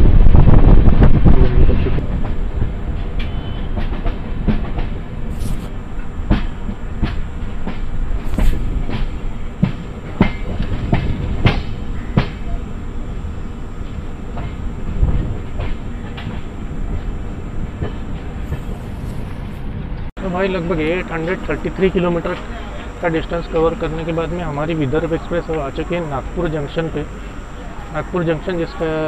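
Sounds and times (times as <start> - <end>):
wheels rumbling on rail: 0.0 - 29.0
wheels clacking over rail joints: 6.0 - 12.6.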